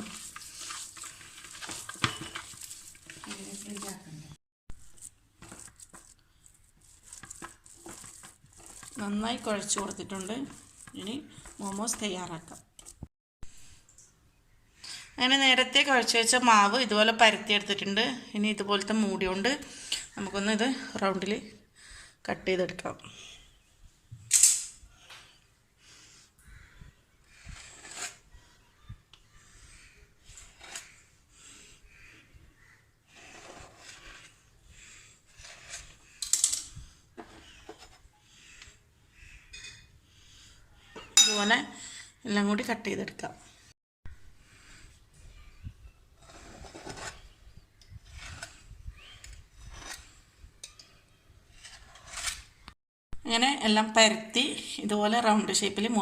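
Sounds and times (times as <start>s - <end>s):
lid scraping through dough: 5.0s - 12.9s, 27.4s - 28.3s, 33.1s - 34.6s.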